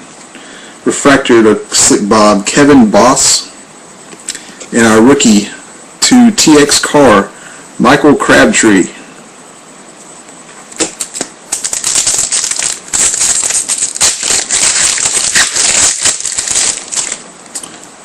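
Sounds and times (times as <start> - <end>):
foil wrapper crinkling and tearing: 10.8 - 17.7.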